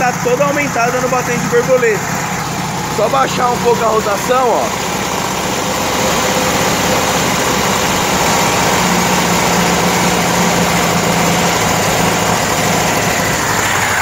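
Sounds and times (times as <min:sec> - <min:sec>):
car engine at fast idle: 0:00.0 - 0:14.0.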